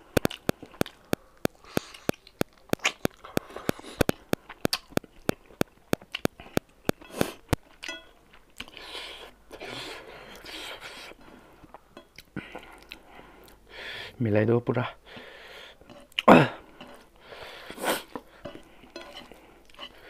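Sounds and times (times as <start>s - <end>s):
soft chewing noises: 0.0s - 14.0s, 15.0s - 20.0s
open-mouth chewing smacking: 0.1s - 9.4s, 10.2s - 13.6s.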